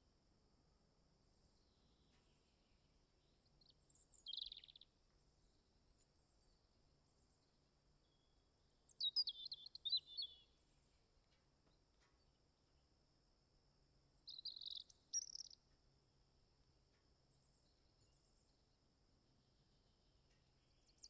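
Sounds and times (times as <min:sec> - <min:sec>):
faint high-pitched hiss: 0:00.0 - 0:21.0
songbirds calling: 0:01.6 - 0:04.9, 0:07.2 - 0:10.8, 0:14.2 - 0:15.6.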